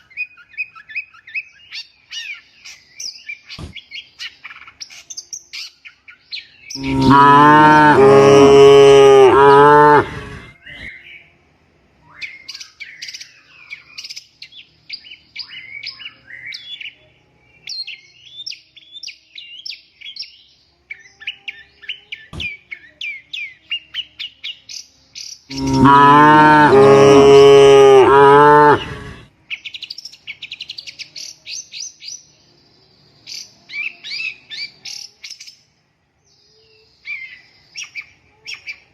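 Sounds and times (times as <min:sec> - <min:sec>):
small birds chirping: 0:00.0 - 0:38.9
cow mooing: 0:06.8 - 0:10.5, 0:25.5 - 0:29.2.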